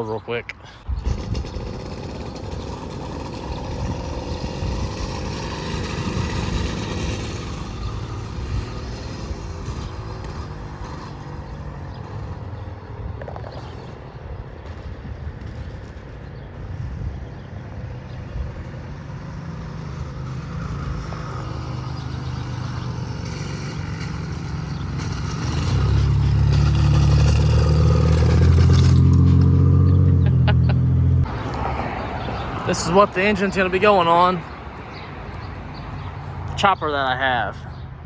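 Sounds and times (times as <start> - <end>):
motorized bicycle engine running: 0.9 - 11.6.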